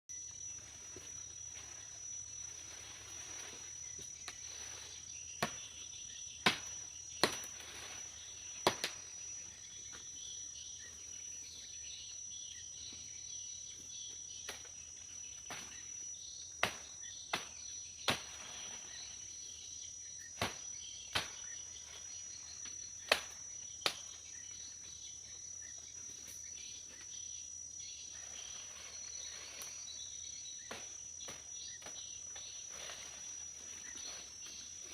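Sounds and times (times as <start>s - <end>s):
insects droning: 0.1s - 34.9s.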